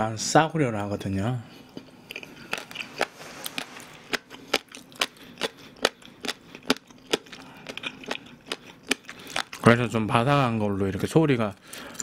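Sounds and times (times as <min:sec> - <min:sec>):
chewing crunchy food: 0:01.6 - 0:09.8.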